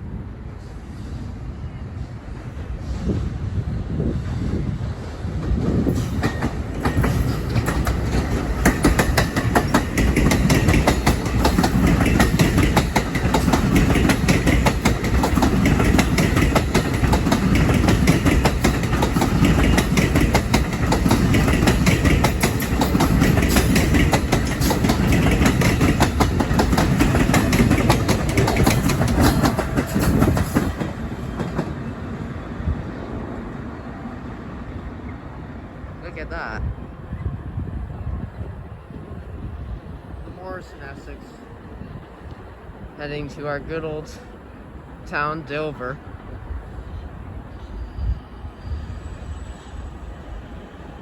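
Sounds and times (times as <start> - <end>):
train wheels rumbling on rail: 0.0 - 51.0
wheels clicking over rail joints: 5.9 - 31.9.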